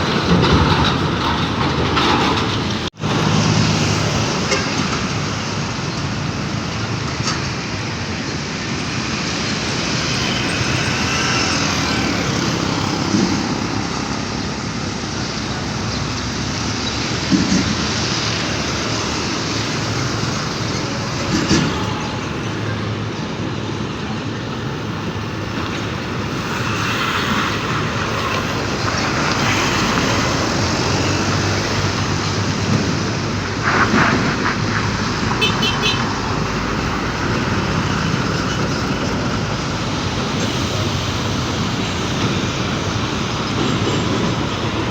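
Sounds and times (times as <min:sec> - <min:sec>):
knocks and clatters: 0:00.0 - 0:03.3
heavy vehicles passing: 0:00.0 - 0:44.9.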